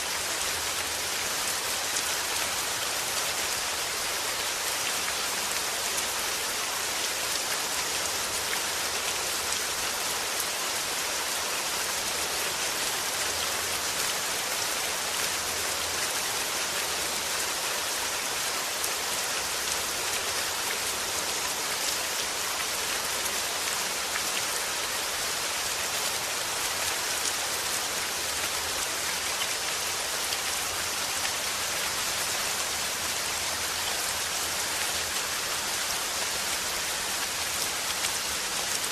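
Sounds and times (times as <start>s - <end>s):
steady falling rain: 0.0s - 38.9s.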